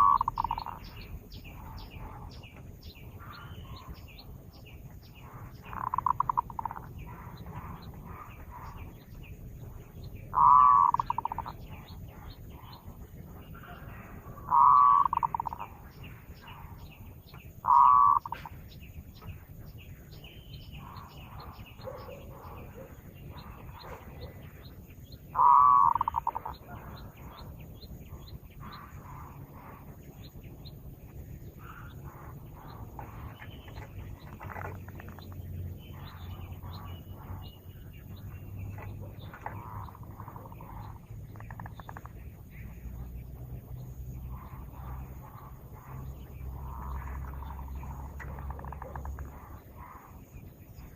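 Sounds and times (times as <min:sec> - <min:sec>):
dove cooing: 0:00.0 - 0:00.8, 0:05.2 - 0:09.0, 0:10.2 - 0:15.8, 0:17.6 - 0:18.6, 0:25.3 - 0:27.1
small birds chirping: 0:00.0 - 0:50.9
steady low hum: 0:00.0 - 0:50.9.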